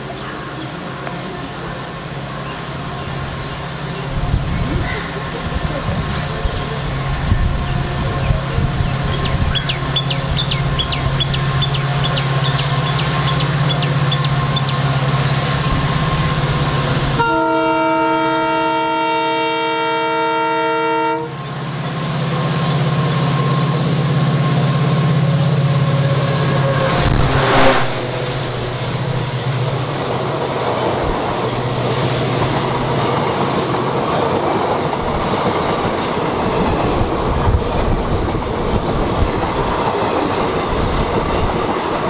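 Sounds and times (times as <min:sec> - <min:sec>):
train rumbling past: 0:00.0 - 0:42.0
train horn blast: 0:17.1 - 0:21.4, 0:25.7 - 0:29.0.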